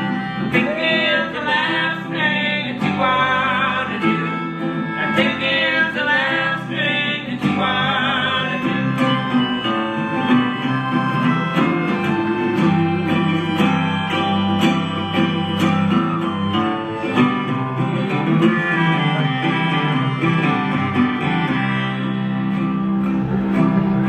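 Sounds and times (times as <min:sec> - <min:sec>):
guitar lead: 0:00.0 - 0:24.0
live band instrumental: 0:08.7 - 0:21.0.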